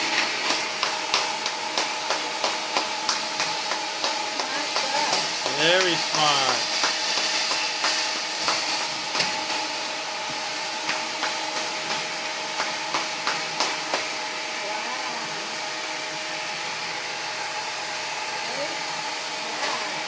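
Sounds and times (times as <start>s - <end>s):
vacuum cleaner knocking: 0.0s - 15.7s
vacuum cleaner running: 0.0s - 20.0s.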